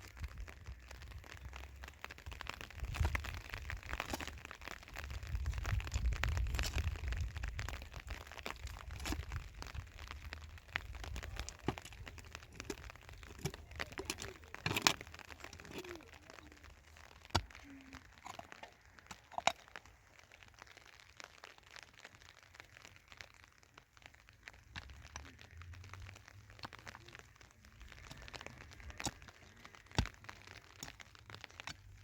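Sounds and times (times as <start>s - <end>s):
plastic sheeting crinkling: 0.0s - 32.0s
sharp knocks and snaps: 24.0s - 32.0s.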